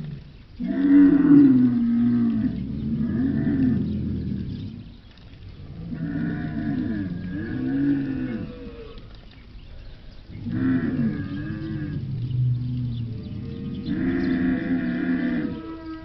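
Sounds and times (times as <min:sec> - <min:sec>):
cow mooing: 0:05.8 - 0:09.0, 0:10.4 - 0:16.0.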